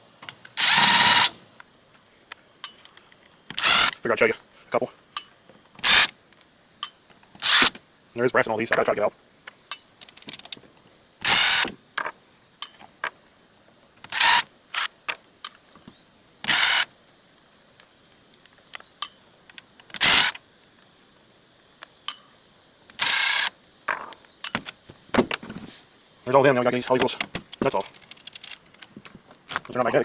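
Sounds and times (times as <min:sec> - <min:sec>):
rasping bursts: 0:00.6 - 0:01.5, 0:03.5 - 0:04.0, 0:05.8 - 0:06.1, 0:07.4 - 0:07.8, 0:11.2 - 0:11.8, 0:16.5 - 0:16.9
metal parts clicking and clattering: 0:09.7 - 0:10.6, 0:27.0 - 0:28.9.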